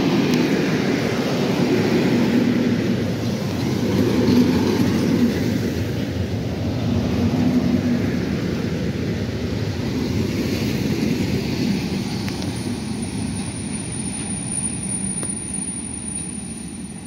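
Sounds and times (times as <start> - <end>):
train low hum: 0.0 - 17.0
train wheels rumbling on rails: 0.0 - 17.0.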